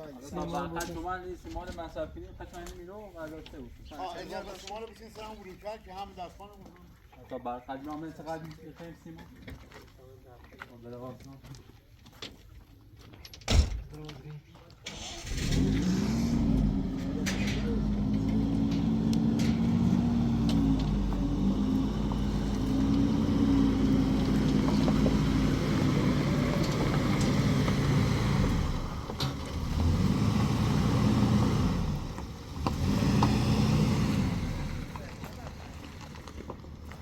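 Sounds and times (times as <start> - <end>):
vehicle engine accelerating: 14.9 - 36.9.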